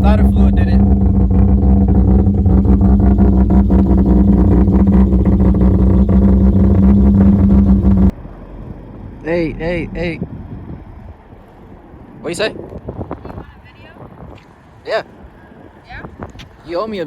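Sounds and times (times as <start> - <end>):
rotary engine idling: 0.0 - 8.1.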